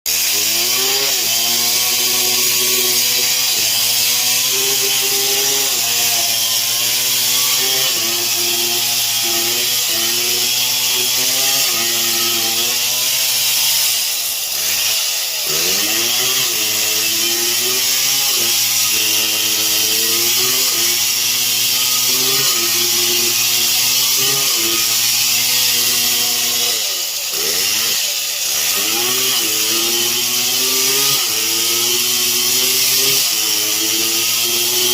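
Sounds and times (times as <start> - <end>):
chainsaw sawing through wood: 0.1 - 34.9.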